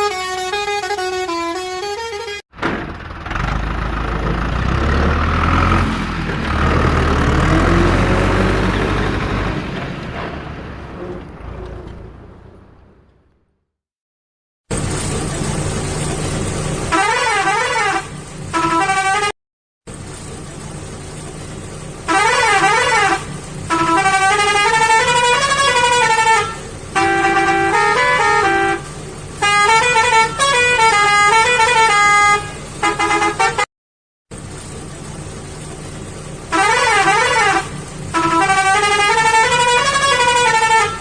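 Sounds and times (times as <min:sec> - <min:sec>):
musical truck horn: 0:00.0 - 0:02.4, 0:16.9 - 0:19.3, 0:22.1 - 0:33.7, 0:36.5 - 0:41.0
engine hum: 0:00.0 - 0:13.7, 0:14.7 - 0:19.0, 0:19.9 - 0:33.5, 0:34.3 - 0:41.0.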